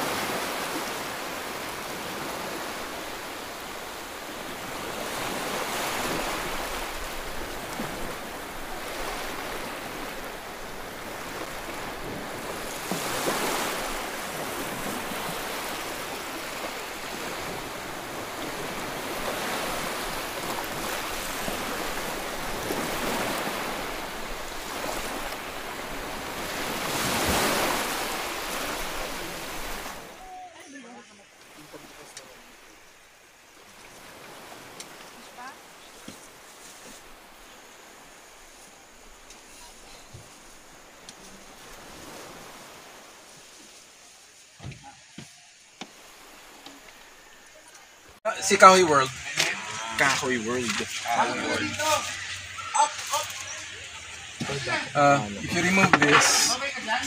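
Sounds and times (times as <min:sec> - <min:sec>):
stream running over rocks: 0:00.0 - 0:57.0.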